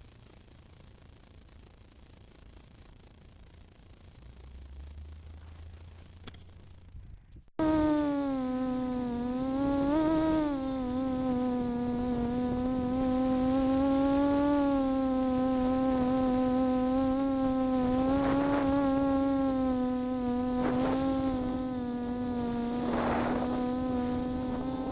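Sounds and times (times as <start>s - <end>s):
drone motors buzzing: 7.6s - 24.9s.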